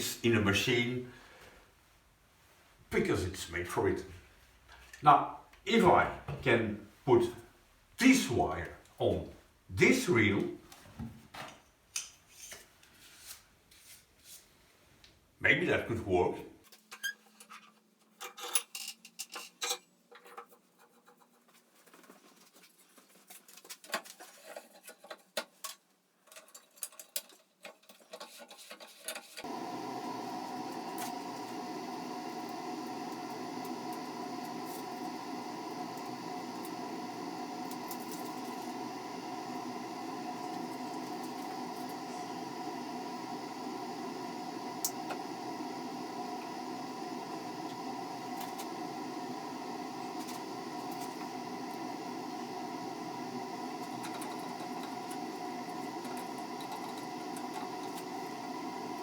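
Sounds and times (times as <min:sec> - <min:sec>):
steady machine hum: 0:29.4 - 0:59.0.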